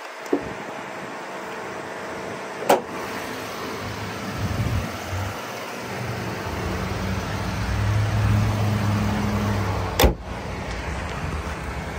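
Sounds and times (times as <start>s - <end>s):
car engine idling: 0.1s - 11.9s
car hood slamming shut: 2.6s - 2.9s, 10.0s - 10.2s.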